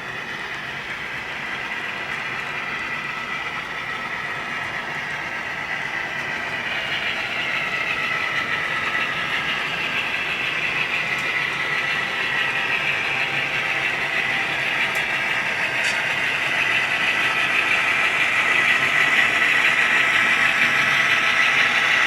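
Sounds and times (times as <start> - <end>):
model train whirring on track: 0.0 - 22.0.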